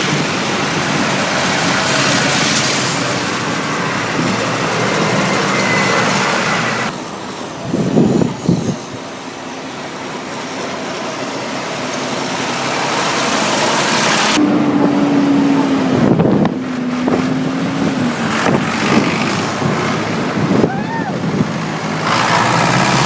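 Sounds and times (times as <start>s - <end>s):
tractors driving past: 0.0s - 23.0s
steady engine note: 9.9s - 23.0s.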